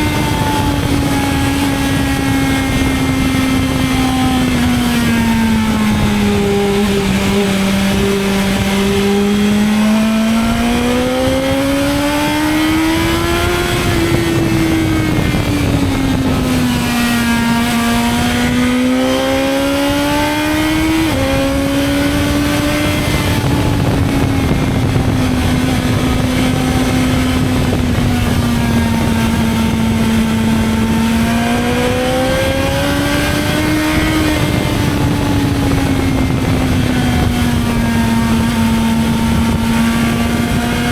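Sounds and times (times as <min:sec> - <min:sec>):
motorcycle engine revving: 0:00.0 - 0:40.9
wind and road noise: 0:00.0 - 0:40.9.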